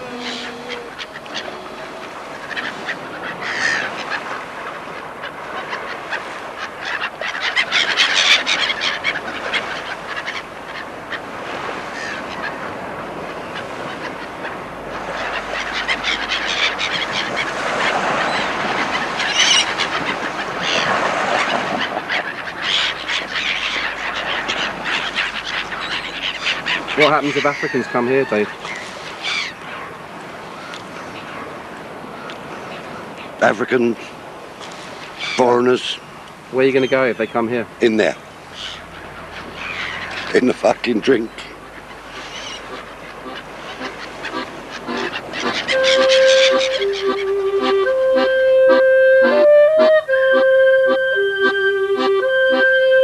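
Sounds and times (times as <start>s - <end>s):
geese and ducks honking: 0.0s - 11.2s, 13.5s - 29.5s, 38.5s - 40.4s, 41.5s - 53.0s.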